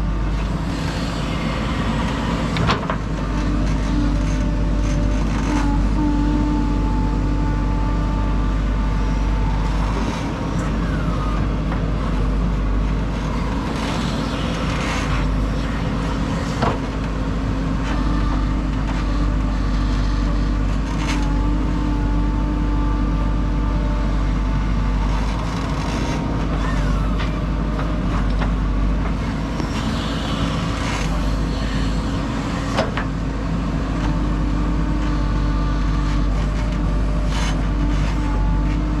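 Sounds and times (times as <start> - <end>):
diesel engine running: 0.0 - 39.0
engine whine: 0.0 - 39.0.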